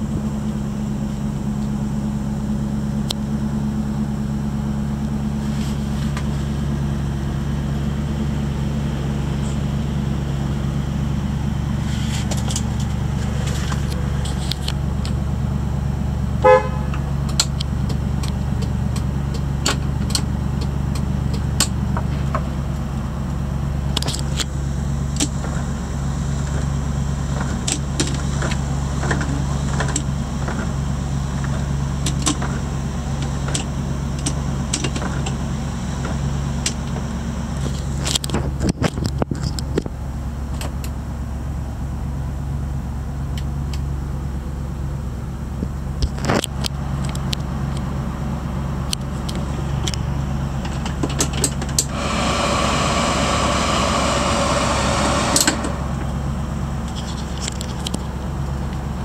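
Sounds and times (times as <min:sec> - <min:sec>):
engine idling: 0:00.0 - 0:59.0
car horn toot: 0:16.4 - 0:17.1.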